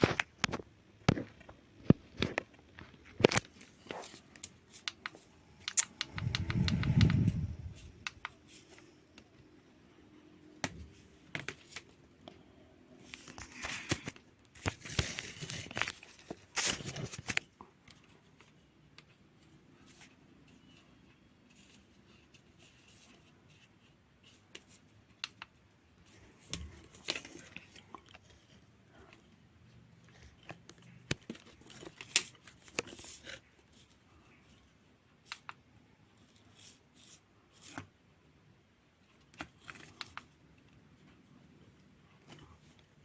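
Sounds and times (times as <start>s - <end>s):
packaging rustling and tearing: 13.4s - 17.4s.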